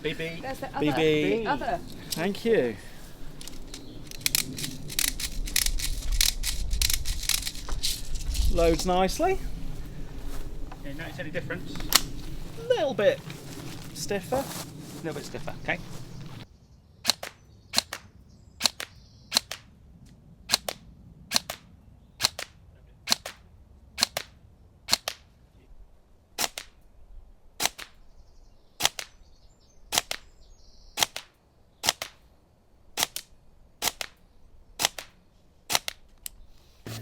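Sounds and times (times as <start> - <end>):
airsoft gun single shots: 17.0 - 19.7.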